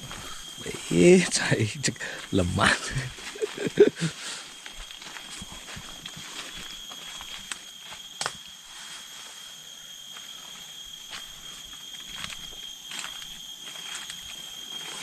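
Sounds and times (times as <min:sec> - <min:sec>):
high-pitched whine: 0:00.0 - 0:15.0
crackles and clicks in dry leaves: 0:04.4 - 0:09.1, 0:10.0 - 0:15.0.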